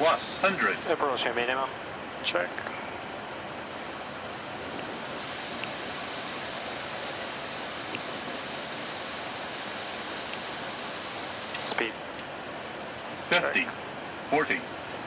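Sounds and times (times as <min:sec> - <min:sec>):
rush of air noise: 0:01.7 - 0:15.0
faint ticks: 0:05.6 - 0:05.8, 0:07.8 - 0:08.1, 0:10.3 - 0:10.5.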